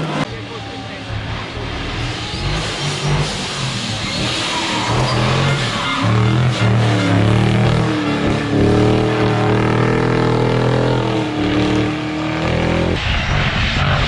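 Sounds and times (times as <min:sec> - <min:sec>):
car engine at high revs: 0:00.0 - 0:14.0
noisy sound: 0:00.0 - 0:14.0.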